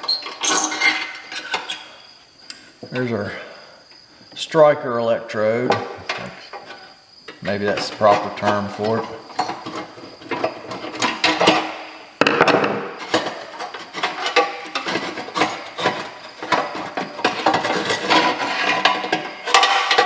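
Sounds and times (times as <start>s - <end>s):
metal parts clinking and scraping: 12.4s - 20.0s.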